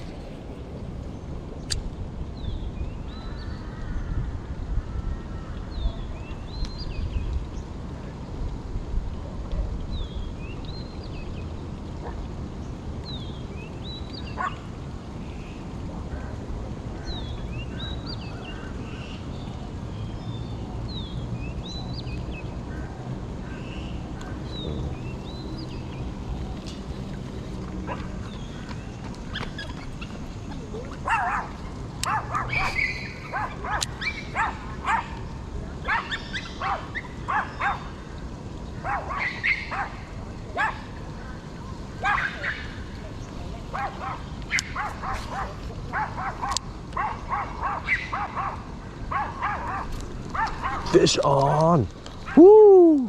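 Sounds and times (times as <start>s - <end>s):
animal chirping: 32.0s - 35.0s.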